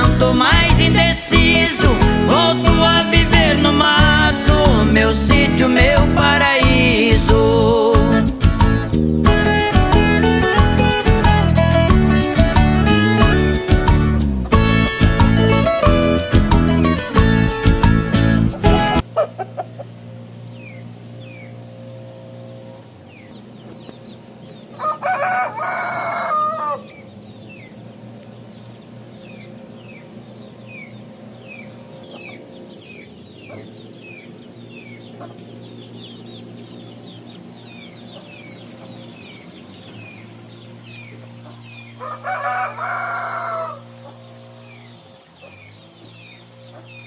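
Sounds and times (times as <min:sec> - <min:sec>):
rooster crowing: 0:24.7 - 0:27.1, 0:41.4 - 0:44.8.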